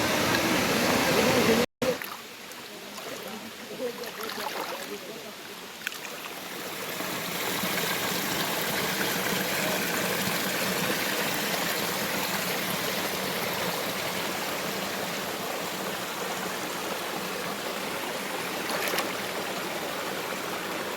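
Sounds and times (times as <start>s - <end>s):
waterfall roaring: 0.0s - 1.7s, 6.4s - 20.9s.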